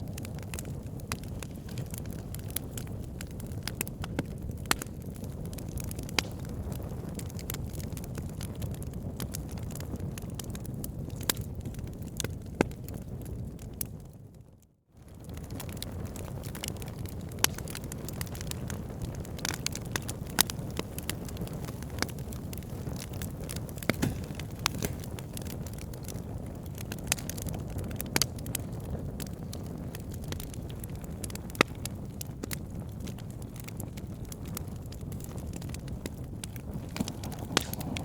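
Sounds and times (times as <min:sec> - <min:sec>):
logs crackling and popping: 0:00.0 - 0:14.1, 0:15.0 - 0:38.0
fire flame rushing: 0:17.4 - 0:27.4, 0:34.9 - 0:38.0.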